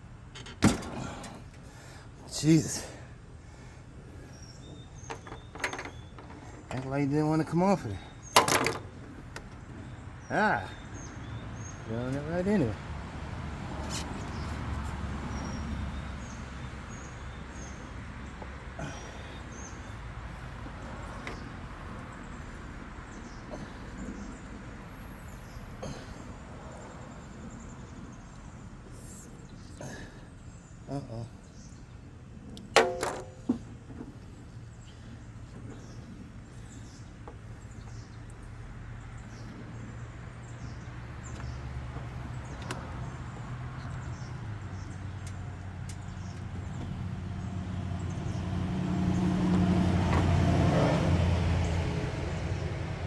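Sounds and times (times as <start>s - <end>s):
birds chirping: 0.0s - 53.0s
light clicks of small parts: 45.2s - 46.5s.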